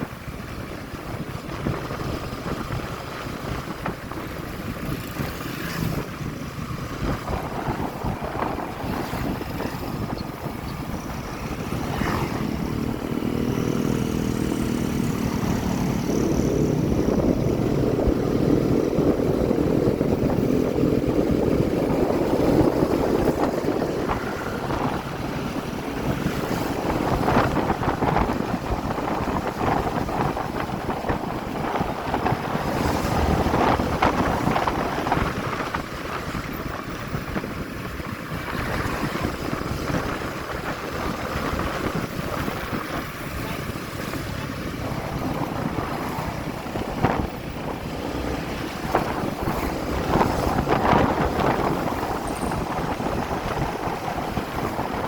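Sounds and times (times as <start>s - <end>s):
wind buffeting microphone: 0.0s - 55.0s
motorcycle engine running: 0.1s - 55.0s.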